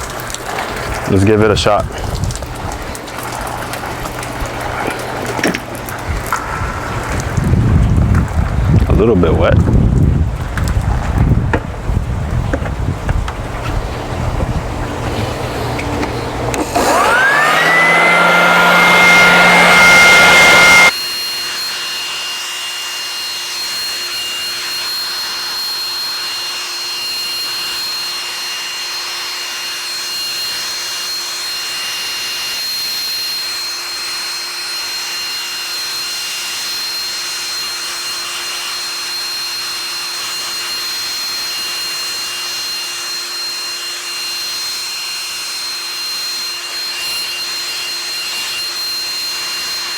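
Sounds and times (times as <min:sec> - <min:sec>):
low hum: 0:13.2 - 0:20.9
electric motor whining: 0:13.2 - 0:49.9.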